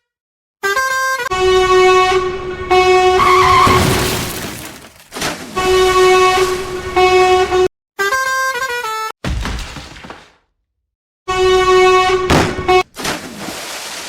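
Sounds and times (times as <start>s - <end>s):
vehicle horn honking: 1.1s - 4.8s, 5.7s - 7.7s, 11.4s - 12.8s.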